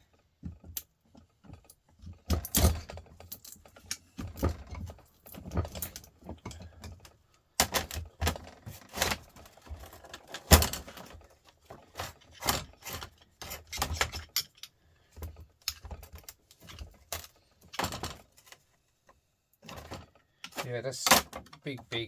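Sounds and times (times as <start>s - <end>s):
metal parts clinking and rattling: 1.5s - 7.0s, 7.6s - 18.6s.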